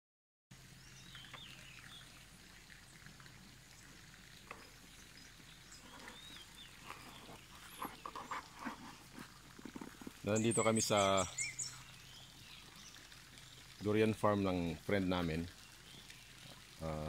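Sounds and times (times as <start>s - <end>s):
distant bird chirps: 0.6s - 3.1s, 3.7s - 9.0s, 9.8s - 13.8s.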